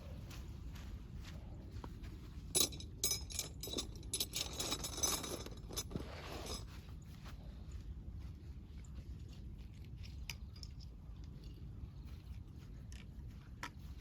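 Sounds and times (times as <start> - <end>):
hard gear clinking and rattling: 2.5 - 6.7.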